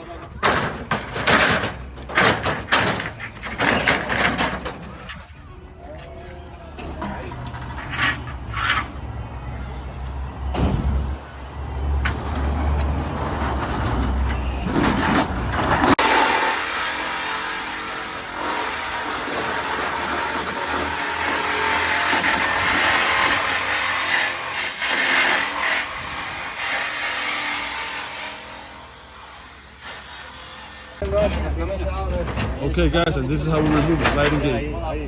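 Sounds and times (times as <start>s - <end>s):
engine running: 7.4s - 23.5s.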